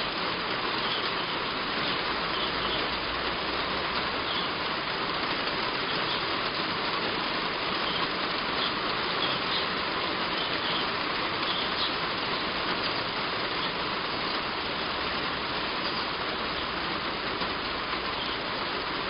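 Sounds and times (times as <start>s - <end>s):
heavy rain on a roof: 0.0s - 19.0s
faint bird chirps: 0.8s - 1.3s, 2.3s - 2.9s, 4.2s - 4.6s, 7.8s - 9.7s, 10.3s - 12.0s, 18.1s - 18.5s.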